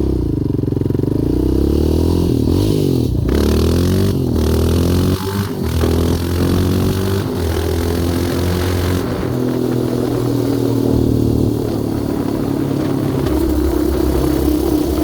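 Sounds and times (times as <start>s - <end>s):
quad engine running: 0.0s - 15.0s
high rushing noise: 8.2s - 15.0s.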